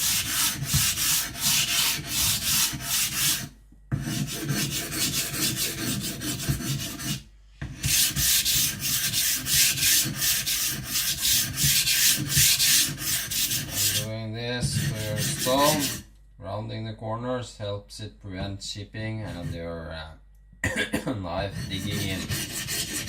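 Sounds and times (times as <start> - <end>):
blade scraping on whetstone: 0.0 - 7.2, 7.8 - 16.0, 21.4 - 23.0.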